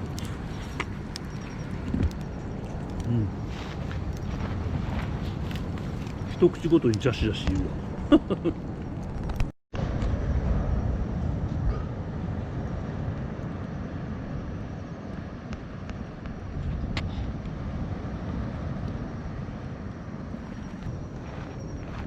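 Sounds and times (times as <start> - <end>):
fire pops and crackles: 0.0 - 10.2
campfire burning: 0.0 - 22.0.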